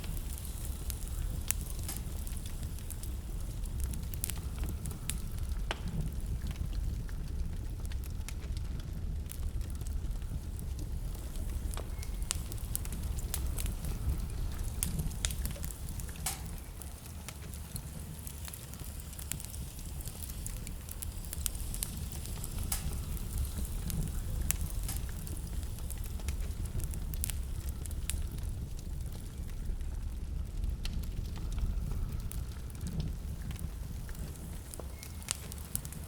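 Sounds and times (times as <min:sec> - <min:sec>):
blizzard wind rumble: 0:00.0 - 0:36.0
wood fire crackling and popping: 0:00.0 - 0:36.0.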